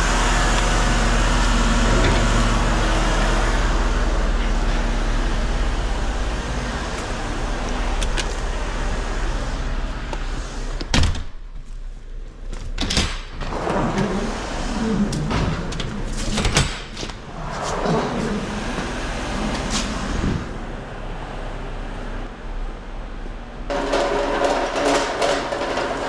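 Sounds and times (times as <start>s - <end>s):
truck engine running: 0.0s - 10.9s, 17.2s - 26.0s.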